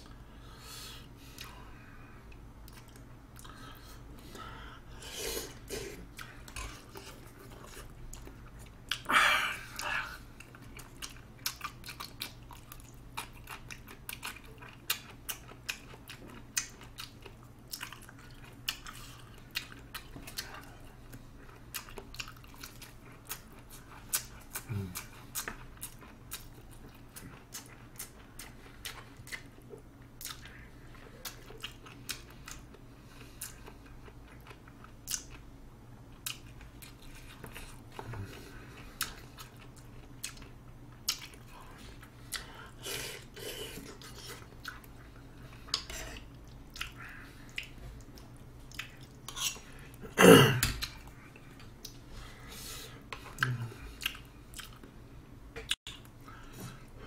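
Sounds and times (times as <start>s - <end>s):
wet chewing and lip-smacking: 2.3s - 4.0s, 9.8s - 35.5s, 36.1s - 42.8s, 43.8s - 50.0s, 50.7s - 52.1s, 53.1s - 55.0s, 55.6s - 57.0s
slurping noodles and soup: 42.8s - 44.5s.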